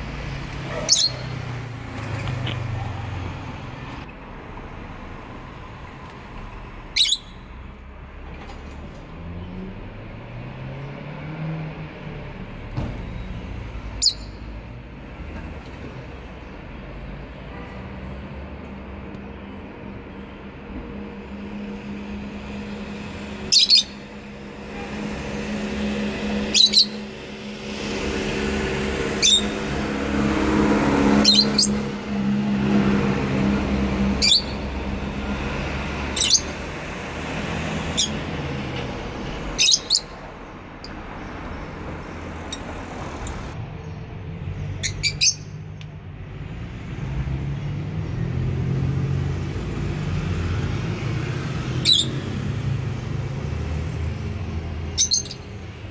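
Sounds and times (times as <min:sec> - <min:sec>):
lovebirds shrill chirps: 0:00.8 - 0:01.4, 0:07.0 - 0:07.4, 0:14.0 - 0:14.4, 0:23.5 - 0:24.0, 0:26.4 - 0:27.0, 0:29.2 - 0:29.6, 0:31.2 - 0:31.8, 0:34.2 - 0:34.7, 0:36.2 - 0:36.5, 0:39.6 - 0:40.1, 0:44.8 - 0:45.6, 0:51.8 - 0:52.2, 0:54.9 - 0:55.4.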